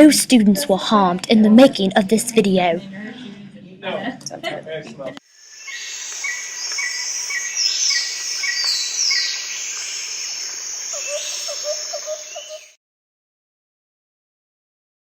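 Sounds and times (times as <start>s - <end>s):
insect hiss: 5.2s - 12.8s
birds chirping and whistling: 5.4s - 12.8s
warbling bird call: 5.4s - 12.8s.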